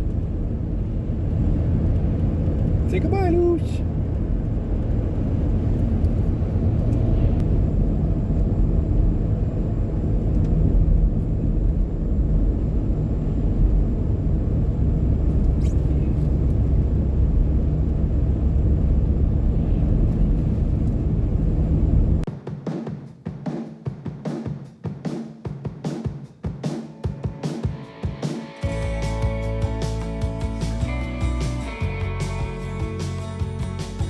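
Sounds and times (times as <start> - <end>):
car engine inside cabin: 0.0 - 22.3
tyres on snowy road: 0.0 - 22.3.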